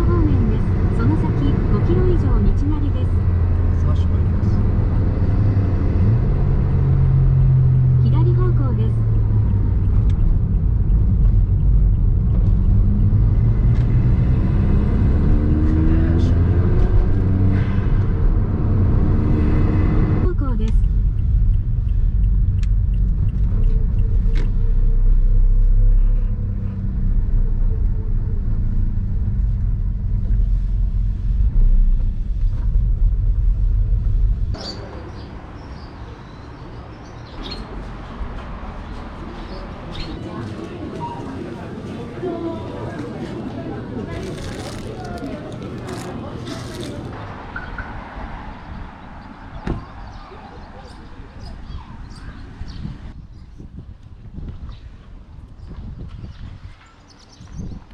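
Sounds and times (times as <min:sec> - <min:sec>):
car engine droning: 0:00.0 - 0:35.2
open-air ambience: 0:00.0 - 0:57.9
tyre and road noise: 0:00.0 - 0:57.9.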